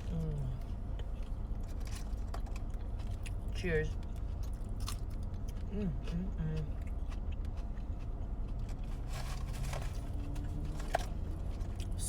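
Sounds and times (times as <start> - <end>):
low rumble in car cabin: 0.0 - 12.0
person eating rustling and clicks: 0.0 - 12.0.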